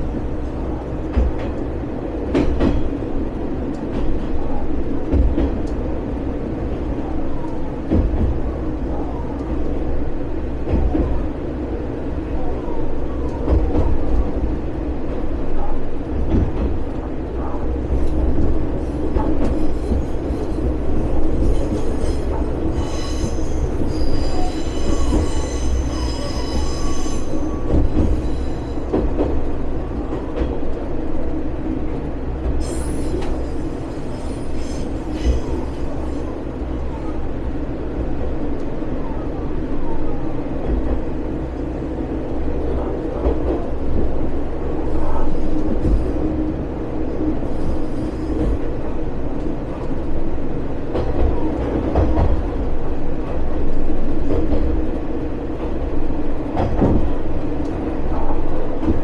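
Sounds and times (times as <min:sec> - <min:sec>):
rail clicks: 0:00.0 - 0:59.0
railcar rumbling: 0:00.0 - 0:59.0
high wheel squeal: 0:19.5 - 0:28.9, 0:32.6 - 0:36.4, 0:47.4 - 0:48.7.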